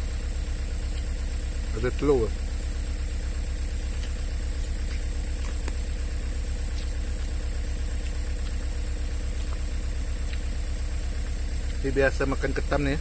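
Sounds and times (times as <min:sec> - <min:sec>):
engine idling: 0:00.0 - 0:13.0
faint steady whine: 0:00.0 - 0:13.0
faint ticks: 0:07.8 - 0:10.6.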